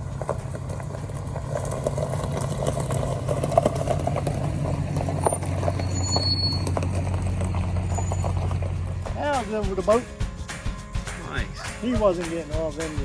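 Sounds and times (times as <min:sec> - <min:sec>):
boat motor humming: 0:00.0 - 0:12.8.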